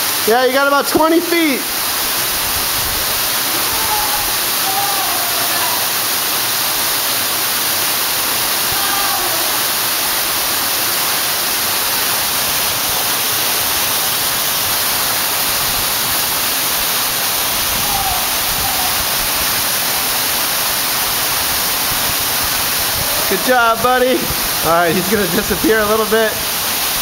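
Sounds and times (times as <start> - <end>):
waterfall roaring: 0.0 - 27.0.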